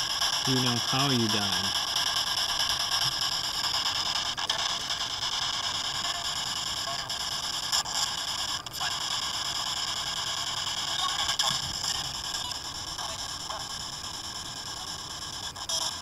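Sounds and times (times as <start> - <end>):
radio static hissing: 0.0 - 16.0.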